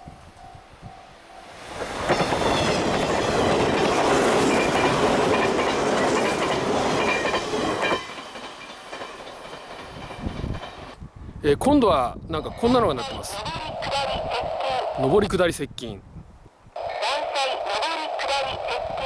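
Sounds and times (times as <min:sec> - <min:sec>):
train passing at speed: 0:00.0 - 0:11.1.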